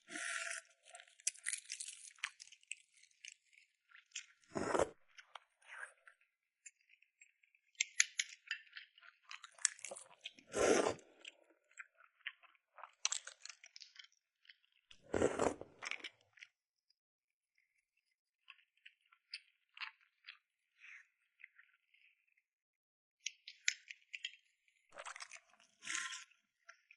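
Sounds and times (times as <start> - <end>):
crunching of food being eaten: 0.1 - 5.4, 7.9 - 16.5, 25.0 - 26.4.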